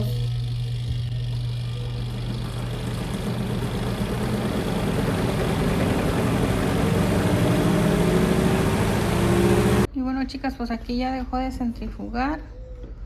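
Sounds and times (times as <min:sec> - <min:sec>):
spin tub whine rising: 0:00.0 - 0:09.9
washing machine motor humming: 0:00.0 - 0:09.9.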